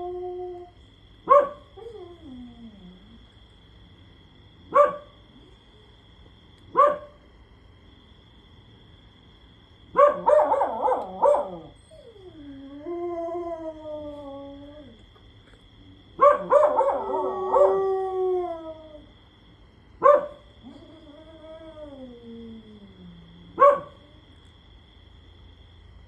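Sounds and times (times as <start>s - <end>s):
dog howling: 0.0s - 0.8s, 1.8s - 3.2s, 10.1s - 15.0s, 16.2s - 19.1s, 20.6s - 23.7s
dogs barking: 1.2s - 1.7s, 4.7s - 5.2s, 6.7s - 7.2s, 9.9s - 11.8s, 16.2s - 17.8s, 20.0s - 20.5s, 23.6s - 24.0s
yelping barks: 1.2s - 1.9s, 4.7s - 5.1s, 6.7s - 7.2s, 9.9s - 12.2s, 16.2s - 17.7s, 20.0s - 20.8s, 23.5s - 24.0s.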